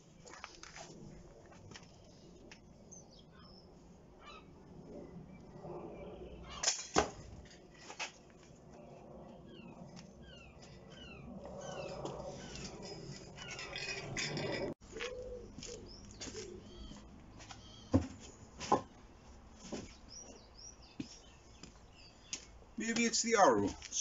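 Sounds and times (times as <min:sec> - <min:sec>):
small birds chirping: 0:15.0 - 0:18.0, 0:19.8 - 0:24.0.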